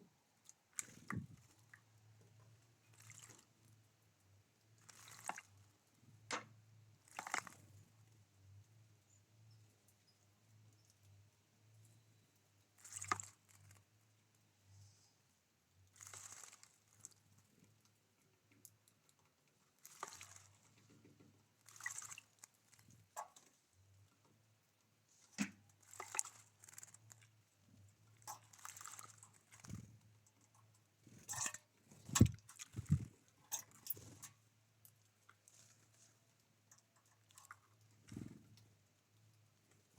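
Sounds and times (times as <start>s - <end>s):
birds rustling and fluttering: 4.8s - 5.6s, 12.8s - 13.9s, 15.9s - 18.0s, 25.1s - 39.9s.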